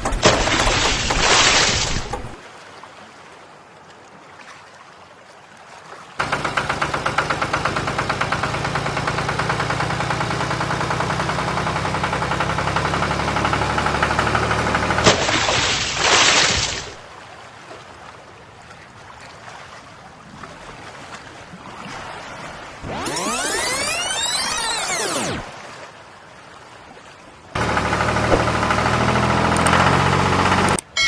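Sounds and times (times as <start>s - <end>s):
pulsing engine running: 0.0s - 2.4s, 6.2s - 15.6s, 22.8s - 25.5s, 27.6s - 31.0s.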